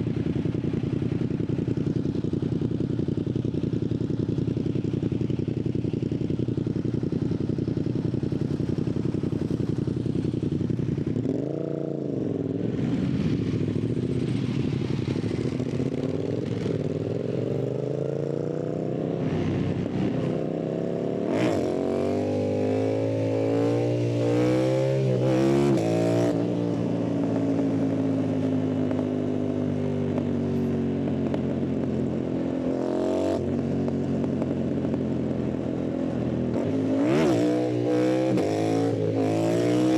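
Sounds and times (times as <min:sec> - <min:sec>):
motorcycle engine and exhaust revving: 0:00.0 - 0:39.9.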